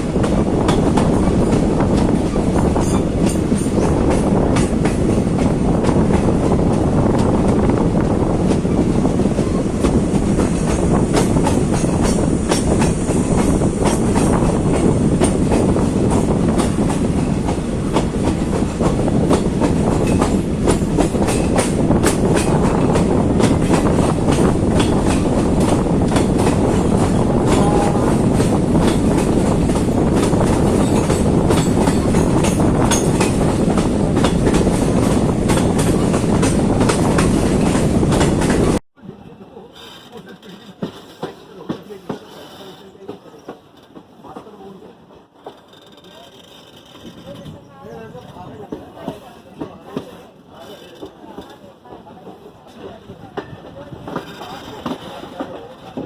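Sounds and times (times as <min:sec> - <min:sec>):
train rumble: 0:00.0 - 0:56.0
wheels clicking over rail joints: 0:28.4 - 0:36.6, 0:39.7 - 0:56.0.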